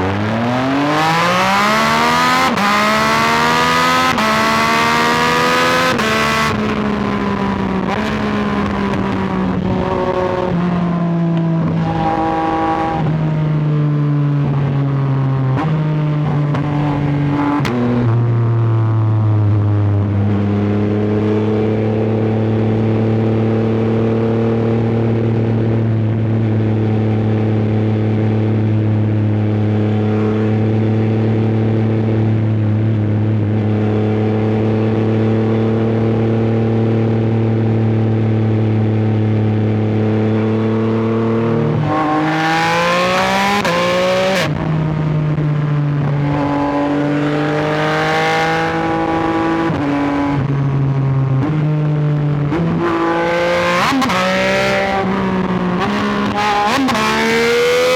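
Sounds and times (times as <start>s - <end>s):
motorcycle engine accelerating: 0.0s - 57.9s
rushing wind noise: 5.9s - 13.2s.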